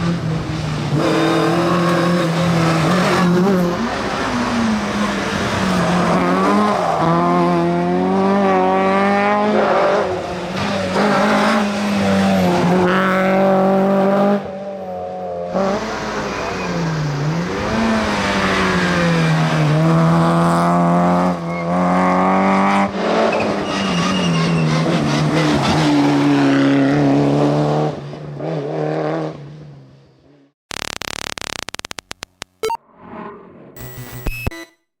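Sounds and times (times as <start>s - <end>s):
rally car engines revving: 0.0s - 29.7s.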